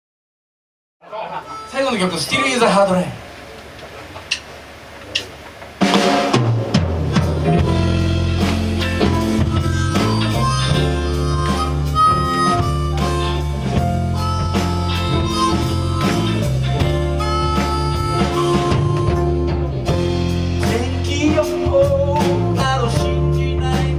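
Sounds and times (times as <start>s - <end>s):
live band playing soul music: 5.8s - 23.9s.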